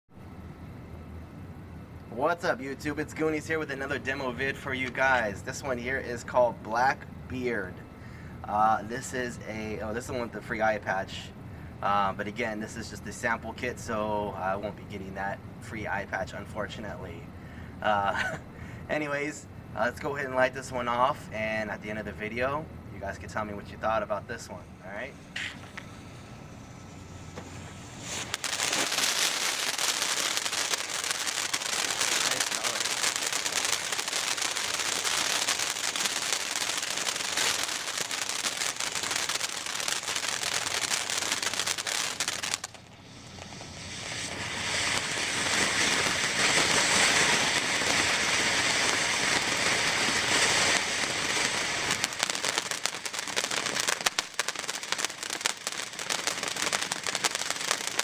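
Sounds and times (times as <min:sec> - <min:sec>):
firework crackling: 0:02.1 - 0:07.5, 0:08.8 - 0:11.3, 0:23.0 - 0:58.0
fountain firework hissing: 0:02.2 - 0:06.6, 0:24.8 - 0:58.0.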